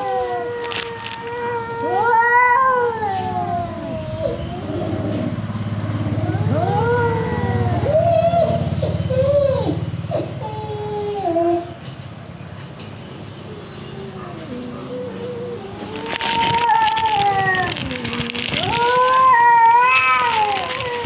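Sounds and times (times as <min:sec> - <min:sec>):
cats yowling: 0:00.0 - 0:11.8, 0:13.6 - 0:21.0.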